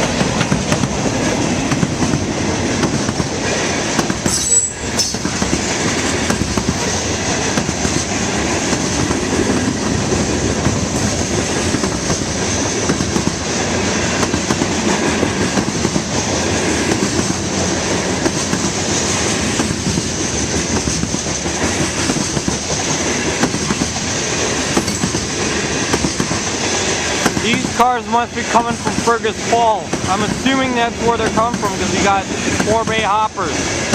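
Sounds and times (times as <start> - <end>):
freight train wheels rumbling on rail: 0.0 - 33.9
high-pitched wheel squeal: 4.3 - 5.2.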